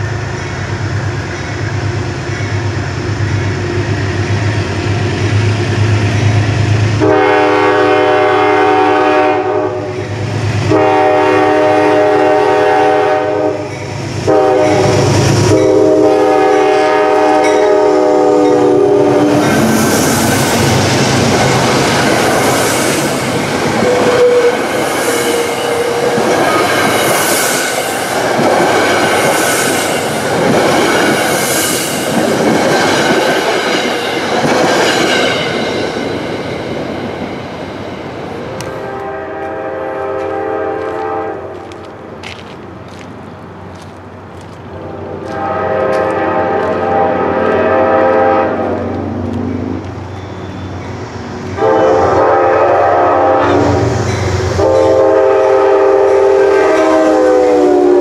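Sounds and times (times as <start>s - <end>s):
diesel locomotive horn blasts: 6.9s - 19.6s, 23.7s - 26.7s, 38.5s - 41.8s, 44.8s - 49.1s, 51.6s - 58.0s
train wheels clacking and rumbling: 13.5s - 39.6s, 40.2s - 52.2s.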